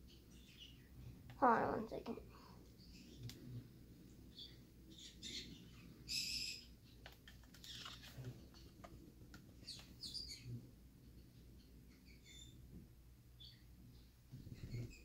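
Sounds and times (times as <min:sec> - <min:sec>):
small bird chirping: 0:00.0 - 0:01.1, 0:02.7 - 0:03.6, 0:04.2 - 0:09.0, 0:09.6 - 0:10.6, 0:11.2 - 0:12.7, 0:13.3 - 0:15.0.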